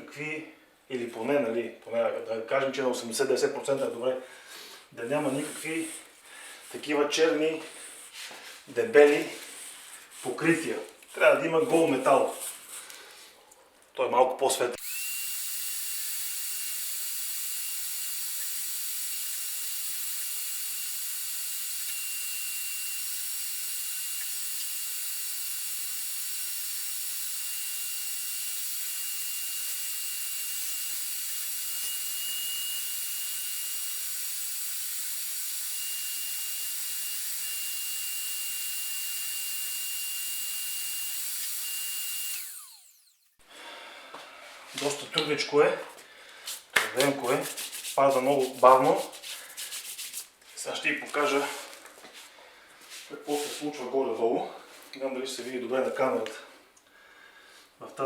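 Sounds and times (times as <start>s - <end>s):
vacuum cleaner running: 14.8s - 43.3s.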